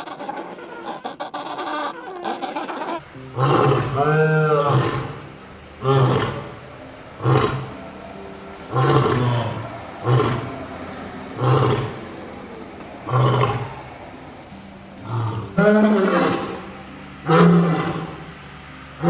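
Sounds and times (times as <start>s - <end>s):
big cat roaring grunts: 3.3s - 6.6s, 7.2s - 7.7s, 8.7s - 10.6s, 11.4s - 12.0s, 13.1s - 13.9s, 15.0s - 18.2s.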